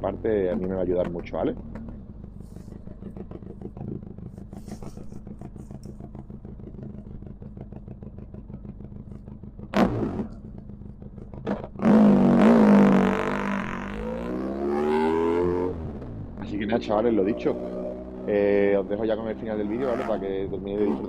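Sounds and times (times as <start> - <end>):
motorcycle engine idling: 0.0 - 14.8, 15.6 - 21.0
motorcycle pulling away: 0.0 - 21.0.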